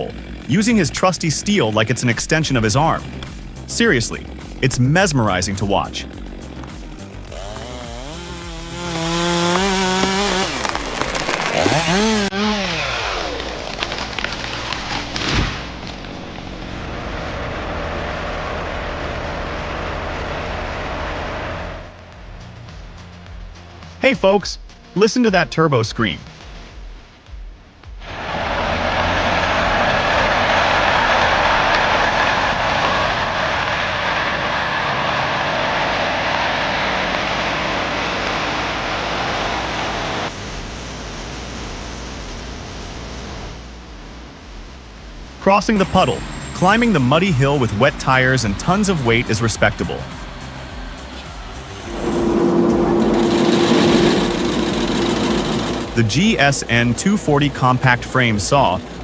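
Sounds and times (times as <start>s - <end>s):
heavy machine engine whining: 0.0s - 22.2s, 45.7s - 59.0s.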